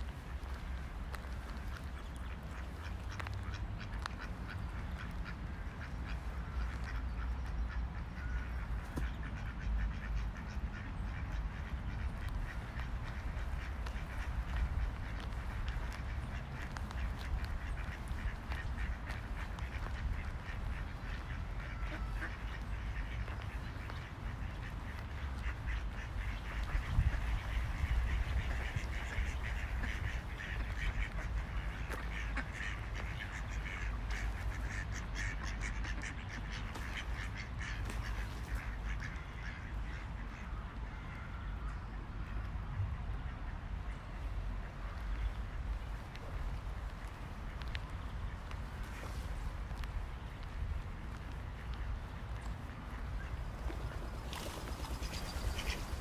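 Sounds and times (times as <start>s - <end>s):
steady low rumble: 0.0s - 40.7s
ducks quacking: 0.1s - 42.5s, 43.3s - 56.0s.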